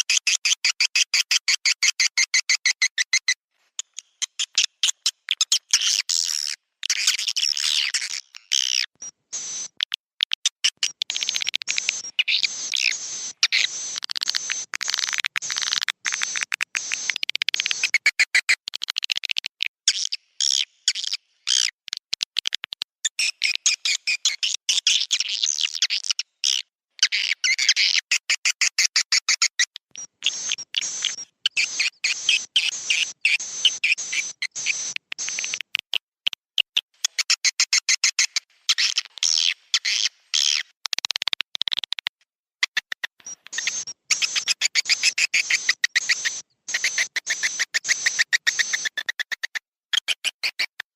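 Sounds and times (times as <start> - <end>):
swiftlets twittering chirps: 10.8 - 18.0, 30.0 - 35.6, 43.2 - 49.1
rapid clicks: 14.0 - 17.9.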